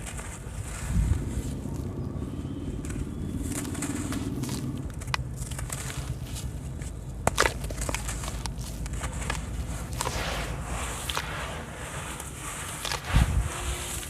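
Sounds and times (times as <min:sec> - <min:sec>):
wet cement crumbling: 0:02.8 - 0:14.0.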